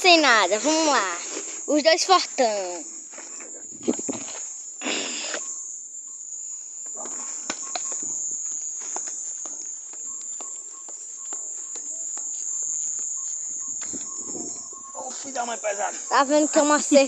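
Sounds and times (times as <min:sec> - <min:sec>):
crickets trilling: 0:00.0 - 0:17.0
rustling of people moving: 0:07.0 - 0:17.0.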